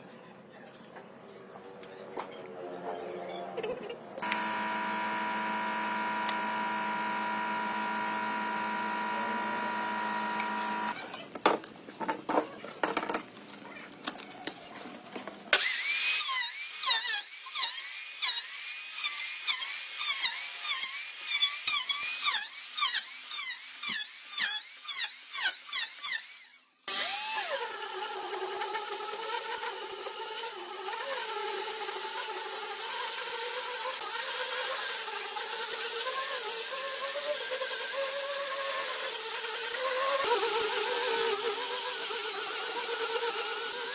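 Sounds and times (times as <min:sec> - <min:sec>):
power tool motor whine: 0:04.2 - 0:11.0, 0:19.0 - 0:27.8
power tool strokes with falling whine: 0:04.2 - 0:11.0.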